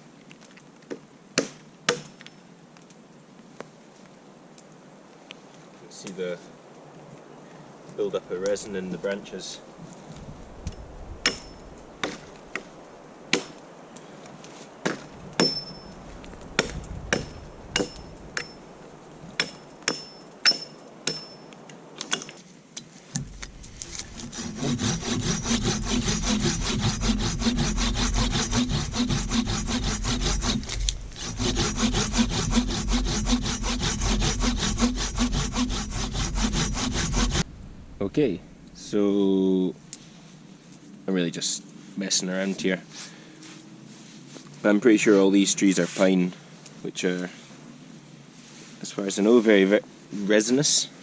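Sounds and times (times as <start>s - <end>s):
hand saw cutting branch: 11.2s - 12.7s, 16.6s - 18.6s, 19.4s - 21.3s, 23.2s - 37.4s.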